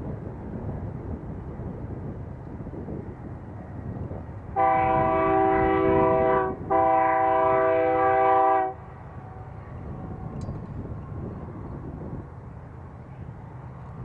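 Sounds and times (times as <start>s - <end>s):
train rumbling: 0.0s - 14.0s
locomotive chime horn blasts: 4.6s - 10.3s.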